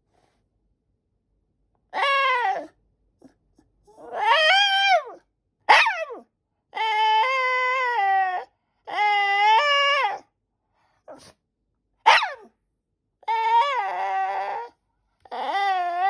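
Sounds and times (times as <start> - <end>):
dog yelp: 2.0 - 2.7, 3.9 - 6.2, 12.1 - 12.5, 13.3 - 14.7
dog whining: 2.0 - 6.2, 6.8 - 10.2, 13.2 - 16.0.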